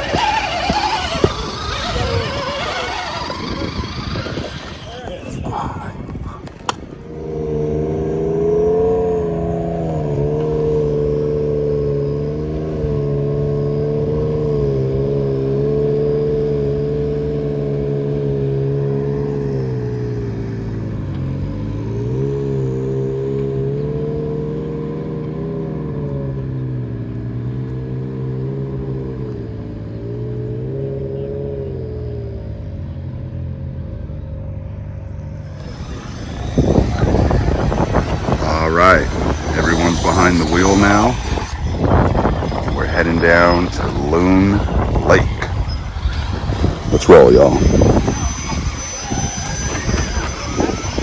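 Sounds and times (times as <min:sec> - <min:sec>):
car engine running: 0:00.0 - 0:13.4, 0:32.7 - 0:51.0.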